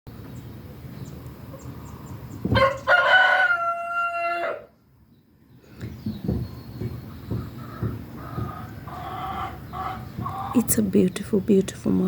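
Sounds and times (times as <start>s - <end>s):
rooster crowing: 2.5s - 4.8s.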